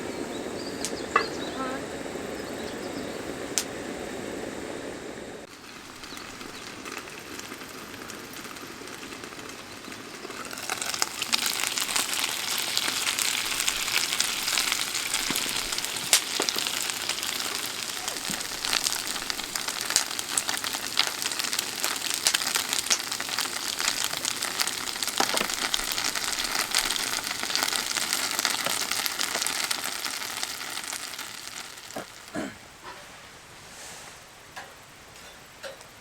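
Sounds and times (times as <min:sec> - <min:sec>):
food sizzling in a pan: 0:05.4 - 0:32.3.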